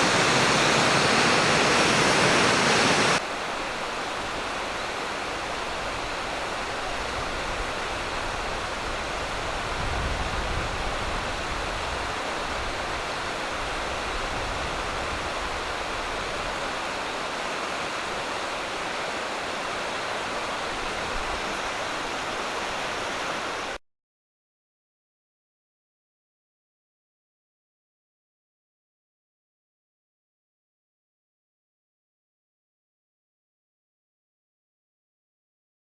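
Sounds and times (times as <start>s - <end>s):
waterfall rushing: 0.0s - 23.8s.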